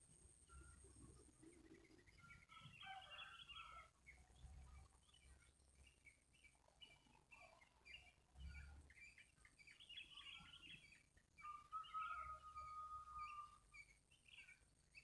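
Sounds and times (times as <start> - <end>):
small birds chirping: 0.1 - 15.0
long bird whistle: 11.4 - 13.6.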